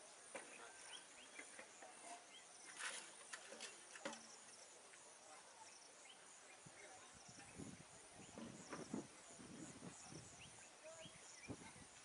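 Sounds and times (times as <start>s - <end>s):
rustle: 0.0s - 12.0s
bird chirps: 0.4s - 2.8s.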